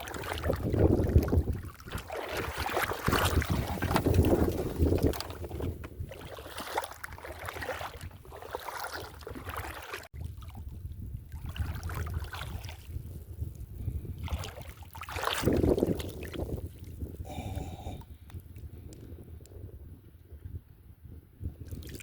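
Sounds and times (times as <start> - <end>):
water sloshing: 0.0 - 13.0, 14.2 - 17.0
wind buffeting microphone: 0.0 - 22.0.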